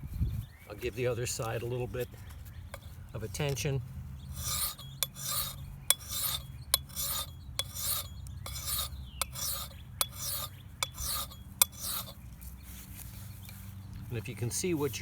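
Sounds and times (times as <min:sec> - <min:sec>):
file rasping on steel blade: 0:04.3 - 0:12.2.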